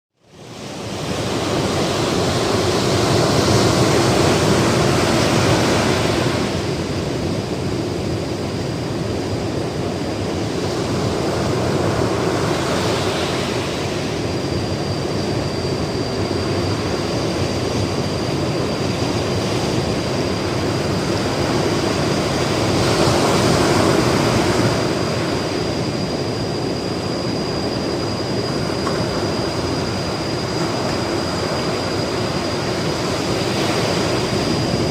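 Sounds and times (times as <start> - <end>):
ocean waves breaking: 0.5 - 7.4, 9.8 - 14.2, 19.0 - 25.8, 28.6 - 34.9.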